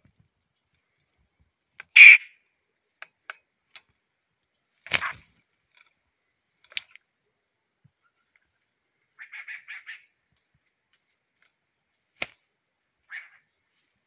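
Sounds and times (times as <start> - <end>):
harsh bird calls: 1.9 - 2.3
high bird call: 1.9 - 2.4.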